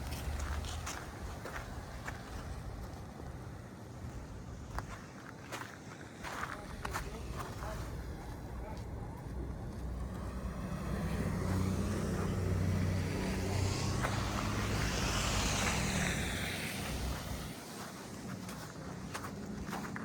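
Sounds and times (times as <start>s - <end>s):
vehicle engine hum: 0.0s - 20.0s.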